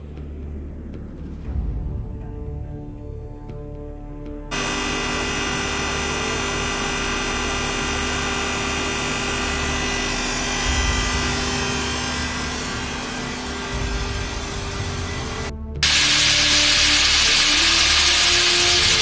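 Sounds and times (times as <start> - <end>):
heavy low rumble: 0.0 - 19.0
core drill grinding: 4.5 - 19.0.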